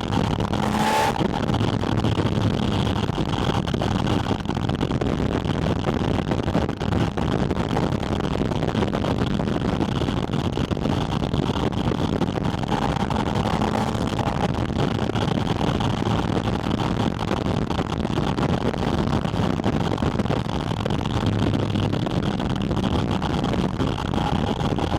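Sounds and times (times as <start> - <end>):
engine intake drone: 0.0 - 5.0, 11.2 - 24.9
rushing wind noise: 0.0 - 24.9.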